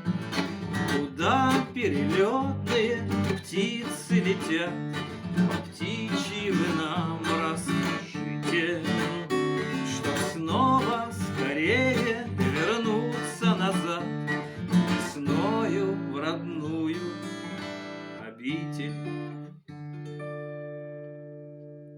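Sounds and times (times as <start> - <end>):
acoustic guitar strumming: 0.0 - 21.9.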